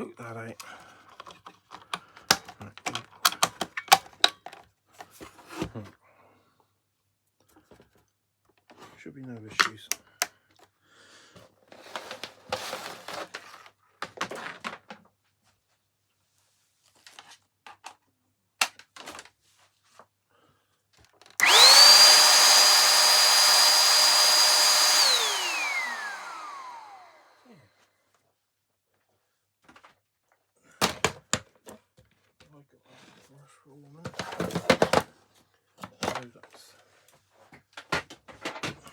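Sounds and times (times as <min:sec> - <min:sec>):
vacuum cleaner motor whining: 0:21.4 - 0:27.5.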